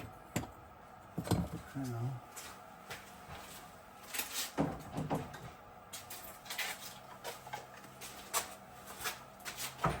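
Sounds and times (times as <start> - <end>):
knocks and thuds of hard parts: 4.6 - 5.6.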